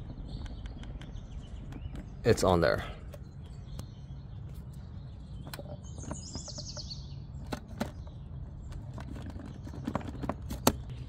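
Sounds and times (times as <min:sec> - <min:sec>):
low background rumble: 0:00.0 - 0:11.0
small bird trilling: 0:03.2 - 0:08.4.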